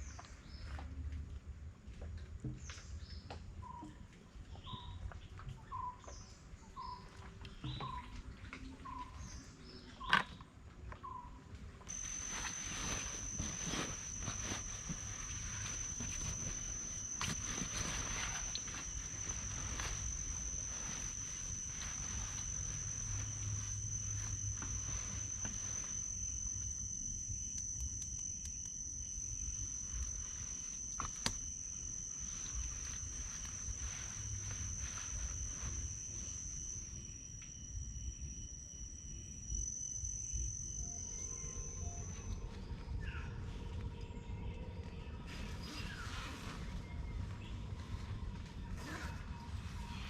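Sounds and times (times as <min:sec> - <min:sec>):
insects trilling: 0:11.0 - 0:50.0.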